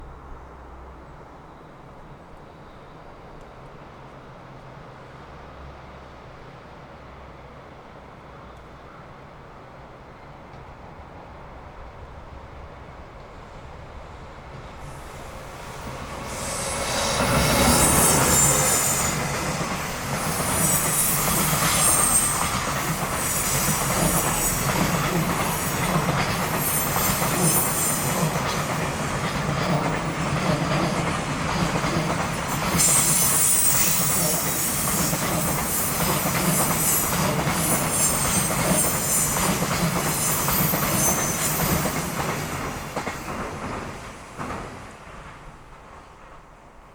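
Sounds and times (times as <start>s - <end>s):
freight train rolling rumble: 0.0s - 46.9s
rail clicks: 14.5s - 46.9s
train wheels squealing: 14.8s - 45.4s.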